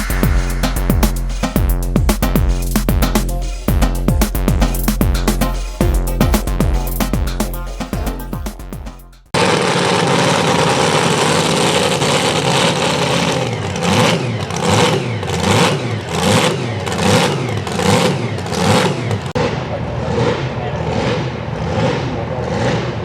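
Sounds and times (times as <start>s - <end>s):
pulling truck engine revving: 9.1s - 19.4s.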